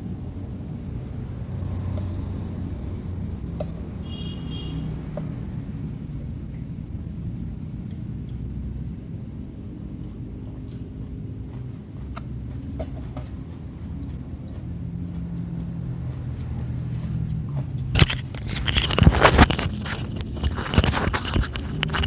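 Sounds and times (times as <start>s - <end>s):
crunchy chewing of food: 6.4s - 22.0s.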